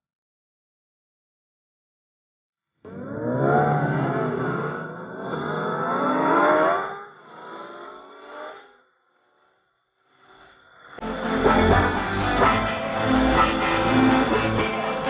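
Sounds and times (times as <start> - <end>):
motorcycle engines revving: 2.9 - 14.8.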